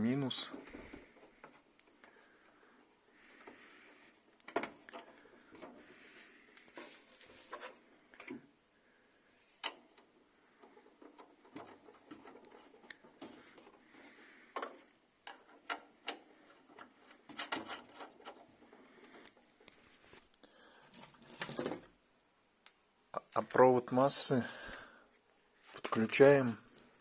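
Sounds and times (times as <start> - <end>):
small clicks and light knocks: 3.3 - 5.9, 14.5 - 22.0.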